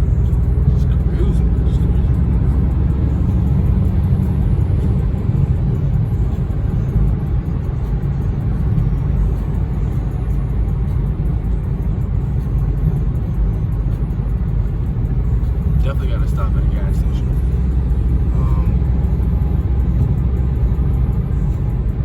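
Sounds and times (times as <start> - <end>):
car engine rumble: 0.0 - 22.0
road noise: 0.0 - 22.0.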